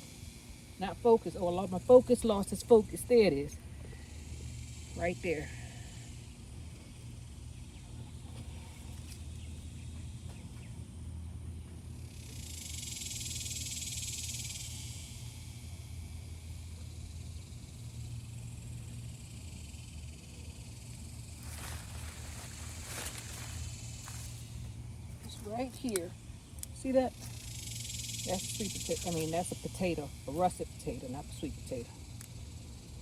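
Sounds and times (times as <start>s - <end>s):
cicadas buzzing: 0.0s - 33.0s
faint low hum: 0.0s - 33.0s.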